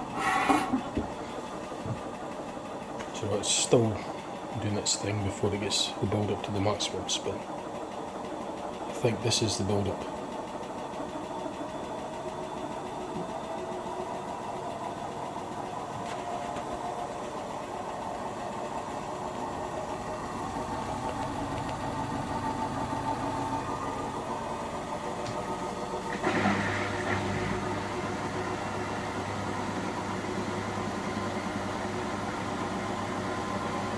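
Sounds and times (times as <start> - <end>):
washing machine drum spinning: 10.2 - 33.9.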